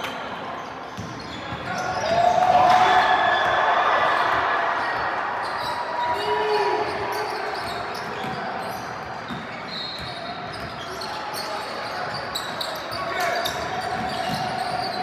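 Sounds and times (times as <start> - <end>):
spectators shouting and cheering: 0.0 - 9.3
basketball bouncing on court: 0.9 - 2.4, 6.9 - 11.2, 13.4 - 15.0.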